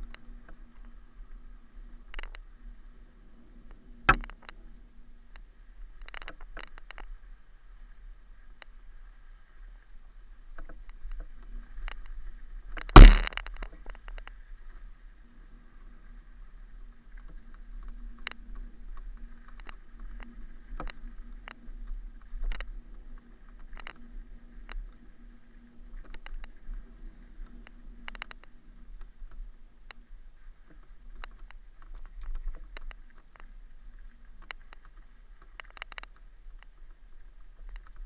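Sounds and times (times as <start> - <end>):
sharp loud thump: 13.0 - 13.3
light clicks and knocks: 30.6 - 38.0.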